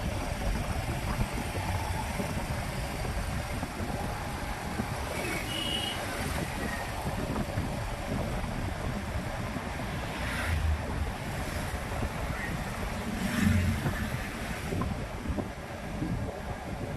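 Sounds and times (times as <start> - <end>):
road traffic: 0.0 - 16.9
wind on microphone: 0.0 - 16.9.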